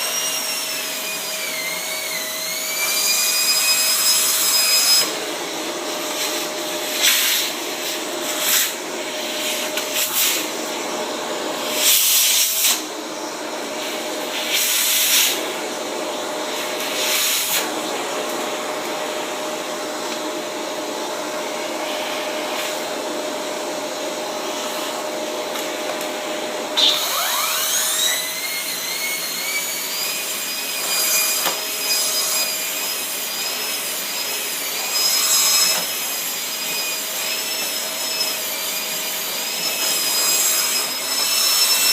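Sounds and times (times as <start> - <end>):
vacuum cleaner brush on mat: 0.1 - 28.3.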